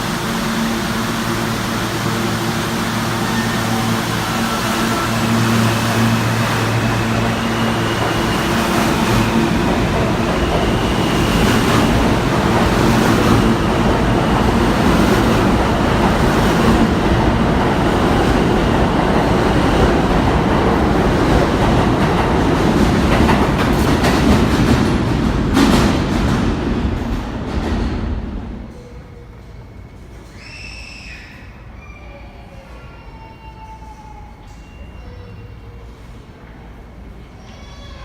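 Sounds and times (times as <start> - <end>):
train motor whine: 0.0 - 16.1
train wheels rumbling on rails: 0.0 - 30.4.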